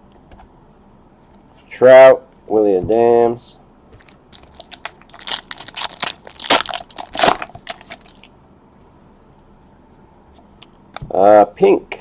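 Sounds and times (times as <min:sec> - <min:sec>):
foil wrapper crinkling and tearing: 0:04.0 - 0:08.3.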